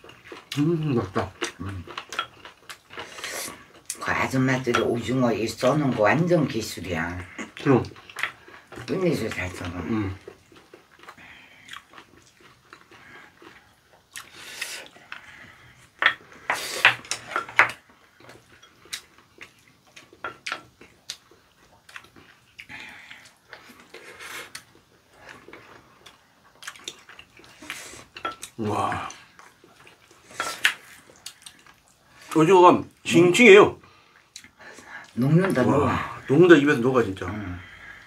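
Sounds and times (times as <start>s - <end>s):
close chewing: 0.0s - 32.5s.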